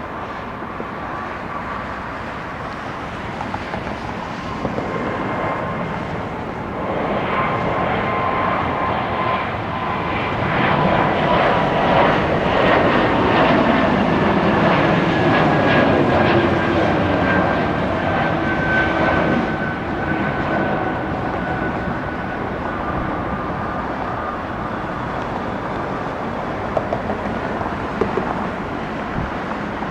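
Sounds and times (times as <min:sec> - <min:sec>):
jet airliner engine whine: 0:00.0 - 0:29.9.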